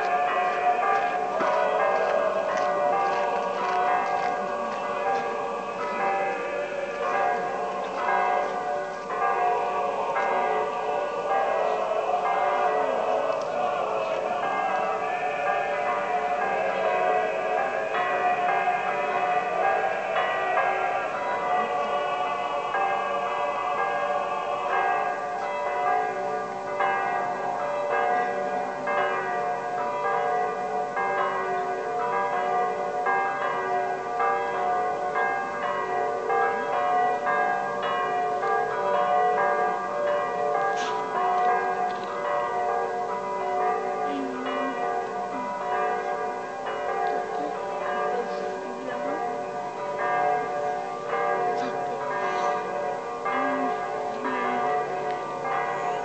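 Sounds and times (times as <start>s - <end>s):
church bells pealing: 0.0s - 56.0s.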